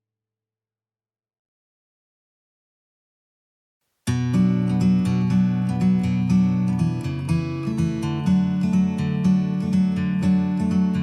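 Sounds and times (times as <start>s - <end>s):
strummed acoustic guitar chords: 4.1s - 11.0s.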